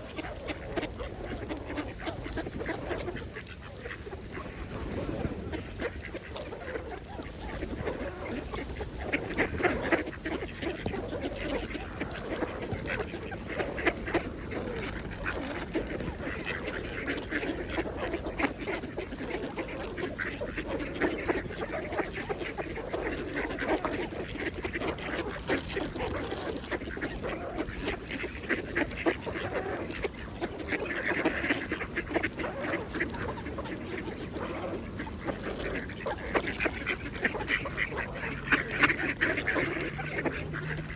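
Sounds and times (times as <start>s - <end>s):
ducks quacking and chattering: 0.0s - 40.9s.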